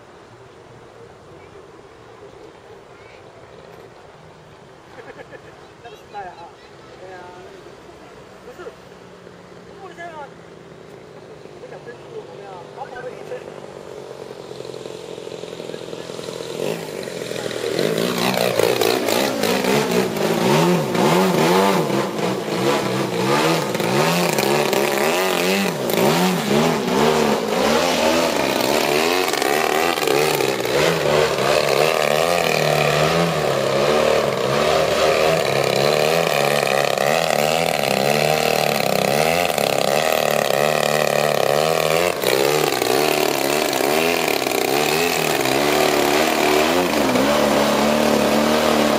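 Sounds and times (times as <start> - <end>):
model plane engine running hard: 12.6 - 48.9.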